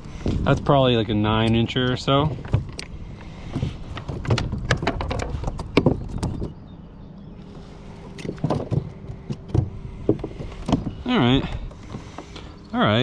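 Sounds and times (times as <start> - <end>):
knocks and clatter in kayak: 1.9 - 2.9, 3.5 - 6.6, 8.2 - 12.3.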